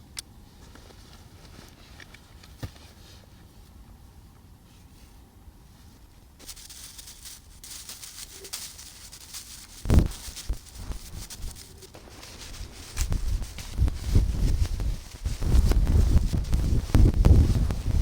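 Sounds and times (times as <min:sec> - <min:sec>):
rustling and crackling: 0:05.7 - 0:18.0.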